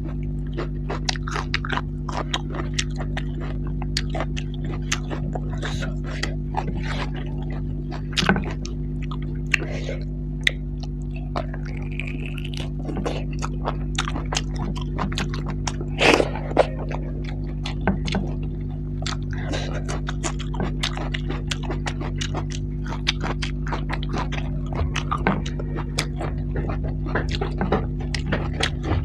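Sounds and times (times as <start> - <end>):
steady low hum: 0.0 - 29.0
wet chewing and lip smacks: 0.0 - 29.0.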